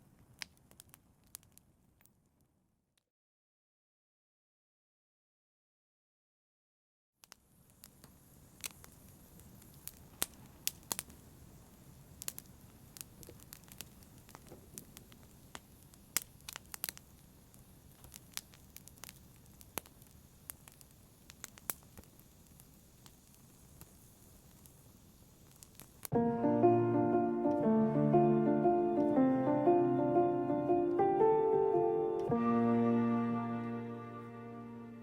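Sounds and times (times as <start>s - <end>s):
wood fire crackling: 0.0s - 2.3s, 7.2s - 32.4s.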